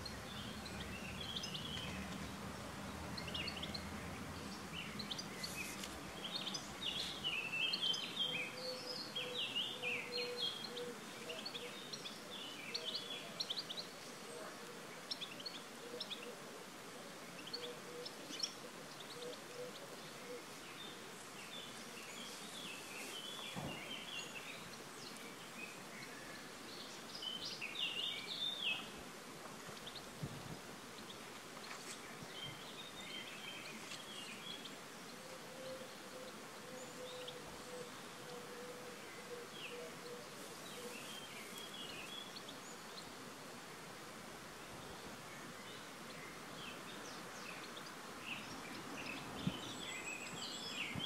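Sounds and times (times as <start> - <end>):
outdoor background hiss: 0.0 - 51.0
birds chirping and singing: 3.1 - 14.0.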